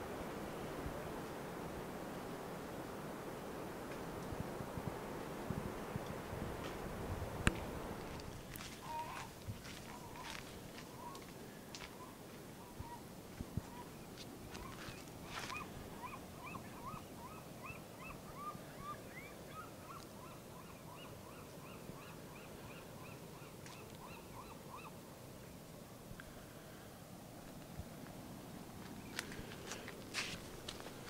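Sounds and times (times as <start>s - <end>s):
bird calling short repeated notes: 8.8s - 9.3s.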